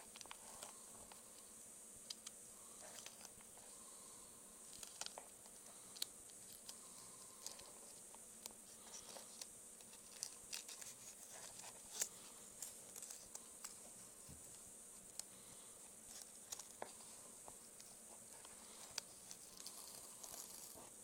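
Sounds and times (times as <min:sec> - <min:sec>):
steady high hiss: 0:00.0 - 0:21.0
vinyl film crinkling: 0:04.6 - 0:21.0.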